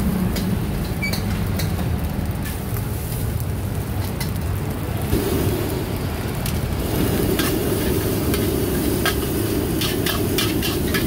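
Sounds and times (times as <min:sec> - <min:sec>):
rice sizzling in a wok: 0:00.0 - 0:11.0
spatula knocking and scraping pan: 0:07.4 - 0:11.0.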